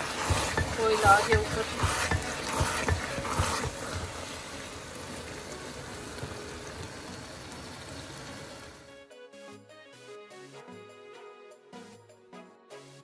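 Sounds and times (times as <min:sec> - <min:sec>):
meat sizzling in oil: 0:00.0 - 0:08.9.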